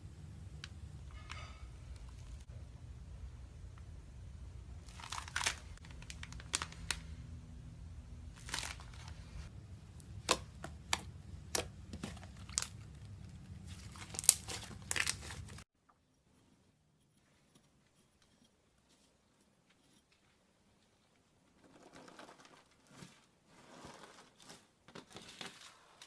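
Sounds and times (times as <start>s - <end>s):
slime crackling and popping: 4.8s - 7.0s, 10.0s - 15.6s.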